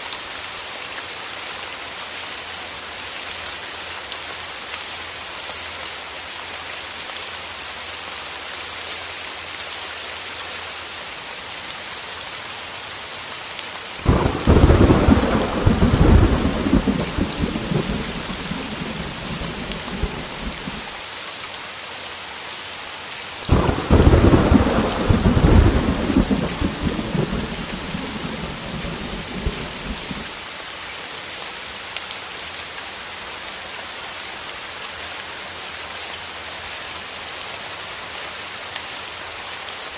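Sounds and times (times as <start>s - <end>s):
heavy rain on a window: 2.5s - 30.6s
thunder claps: 14.0s - 20.9s, 23.5s - 30.3s.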